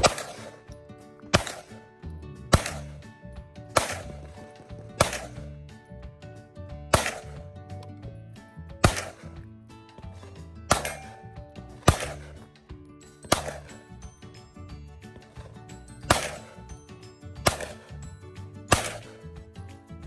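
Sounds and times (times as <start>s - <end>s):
gunshots: 0.0s - 1.8s, 2.5s - 3.1s, 3.7s - 5.6s, 6.9s - 7.4s, 8.8s - 9.4s, 10.7s - 12.5s, 13.2s - 13.8s, 16.0s - 16.6s, 17.4s - 18.0s, 18.7s - 19.3s
background music: 0.0s - 20.0s.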